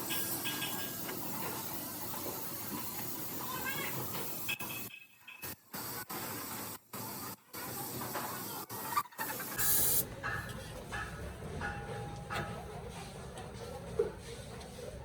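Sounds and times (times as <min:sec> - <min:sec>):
compressed air hiss: 0:09.5 - 0:10.0.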